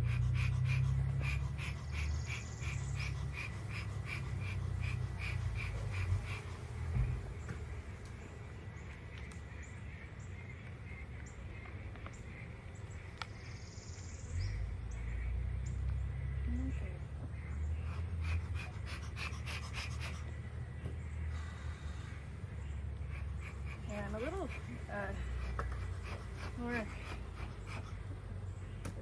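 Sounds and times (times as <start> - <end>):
close breathing: 0.0 - 8.5, 17.6 - 28.7.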